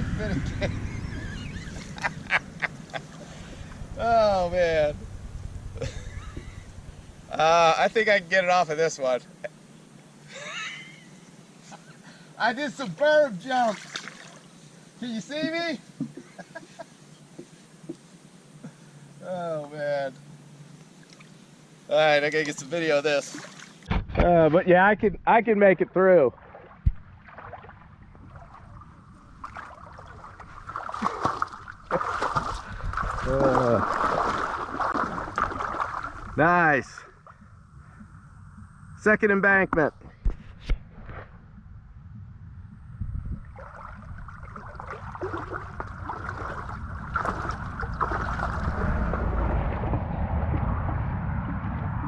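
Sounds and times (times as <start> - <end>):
jet ski engine running: 0.0 - 7.6
water rushing: 13.3 - 14.6, 22.4 - 23.9, 26.3 - 37.4, 43.4 - 49.8.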